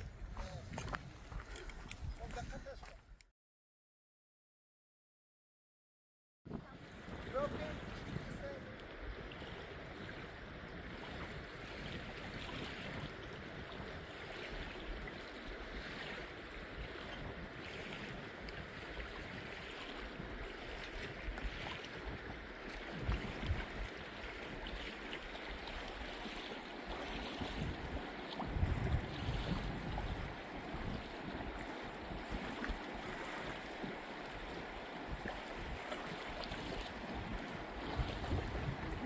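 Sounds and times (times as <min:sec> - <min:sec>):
wind rumbling on microphone: 0:00.0 - 0:03.2, 0:06.5 - 0:39.0
river water flowing: 0:06.8 - 0:39.0.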